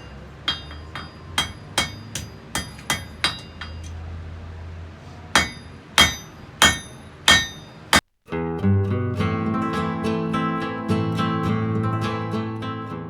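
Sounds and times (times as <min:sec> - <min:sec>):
hammer striking metal on anvil: 0:00.0 - 0:04.0, 0:05.3 - 0:08.0.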